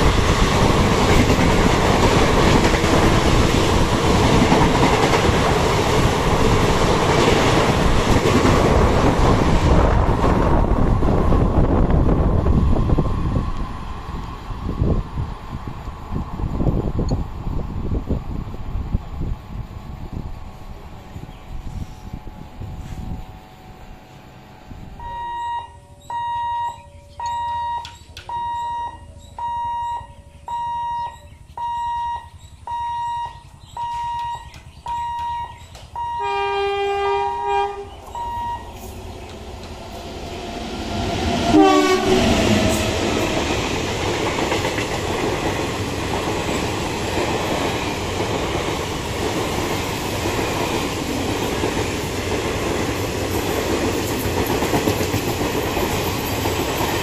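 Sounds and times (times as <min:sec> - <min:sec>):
train wheels rumbling on rail: 0:00.0 - 0:30.1, 0:31.0 - 0:57.0
warning buzzer beeping: 0:25.0 - 0:38.8
train horn: 0:36.1 - 0:38.0, 0:41.3 - 0:43.3.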